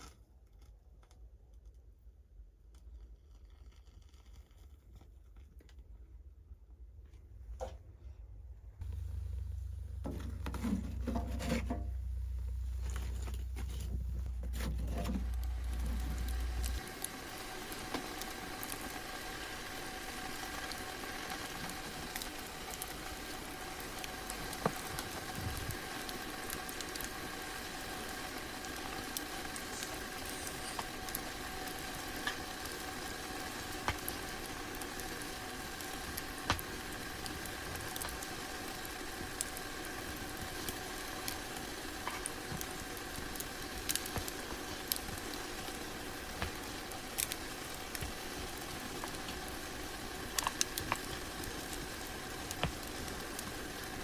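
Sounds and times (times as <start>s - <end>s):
low rumble: 8.8s - 16.8s
food sizzling in a pan: 15.1s - 54.0s.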